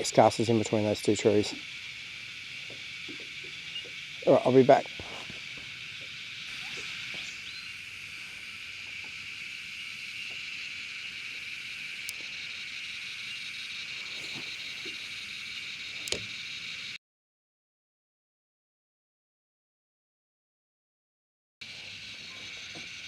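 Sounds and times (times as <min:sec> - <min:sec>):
cicadas singing: 0:00.0 - 0:17.0, 0:21.6 - 0:23.0
faint clicks: 0:12.0 - 0:12.4, 0:15.9 - 0:16.3.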